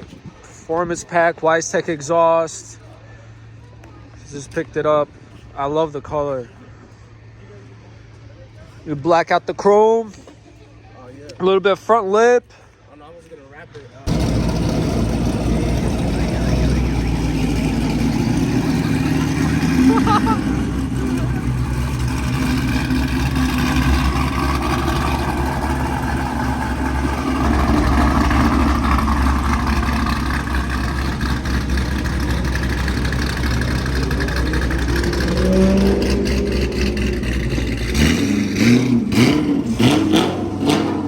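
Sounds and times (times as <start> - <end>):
car engine droning: 14.1 - 41.0.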